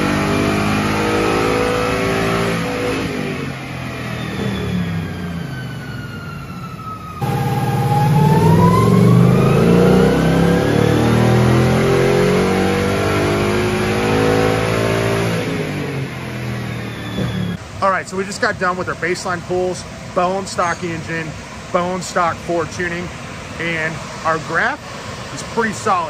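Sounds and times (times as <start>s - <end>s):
car engine revving at full throttle: 0.0s - 5.6s, 7.2s - 17.8s.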